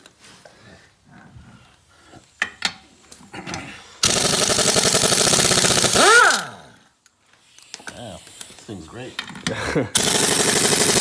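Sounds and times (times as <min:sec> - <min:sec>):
impact wrench rattling: 0:04.0 - 0:06.6, 0:09.2 - 0:11.0.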